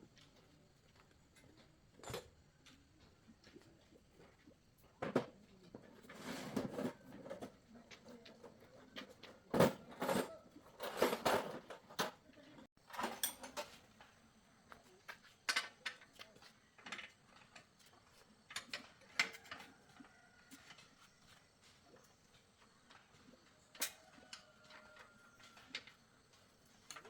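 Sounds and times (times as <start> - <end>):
metal tools clinking and scraping: 9.0 - 12.2, 12.9 - 14.0.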